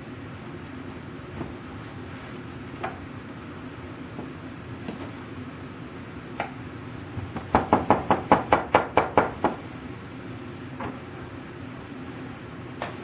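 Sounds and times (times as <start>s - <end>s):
knocking: 7.4s - 9.6s.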